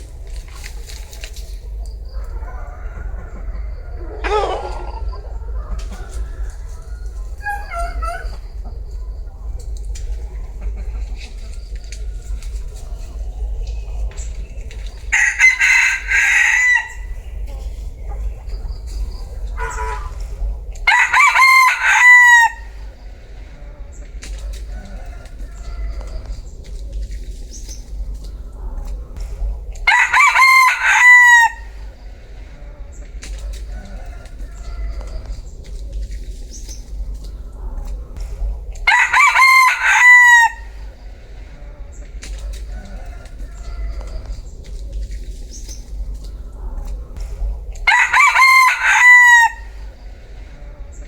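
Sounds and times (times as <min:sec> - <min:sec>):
low rumble: 0:00.0 - 0:51.0
rooster crowing: 0:02.1 - 0:08.6, 0:15.1 - 0:17.2, 0:19.6 - 0:23.0, 0:29.8 - 0:32.0, 0:38.8 - 0:41.0, 0:47.8 - 0:50.0.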